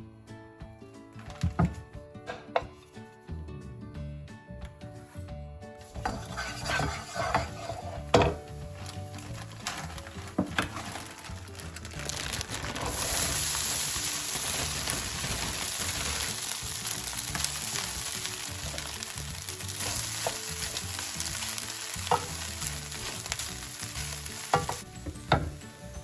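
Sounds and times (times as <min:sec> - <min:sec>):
chicken sizzling in oil: 0:05.8 - 0:10.0, 0:10.7 - 0:26.0.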